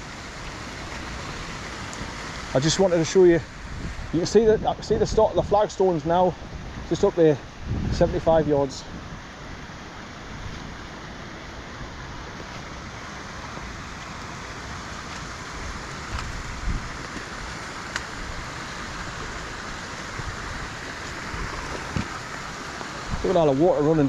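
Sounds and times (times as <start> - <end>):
stream rushing: 0.0 - 24.0
wind rumble on microphone: 0.8 - 9.6, 14.7 - 24.0.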